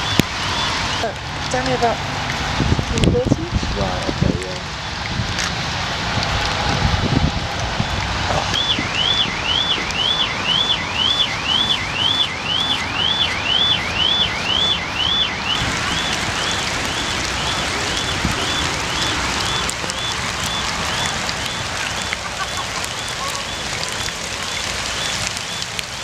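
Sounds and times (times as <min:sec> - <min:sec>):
hiss of rain: 0:00.0 - 0:26.0
car alarm whooping: 0:08.4 - 0:26.0.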